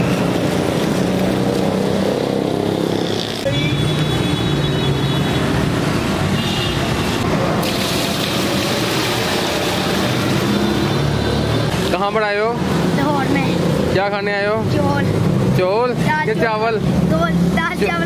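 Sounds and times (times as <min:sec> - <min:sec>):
vehicle engines running: 0:00.0 - 0:18.0.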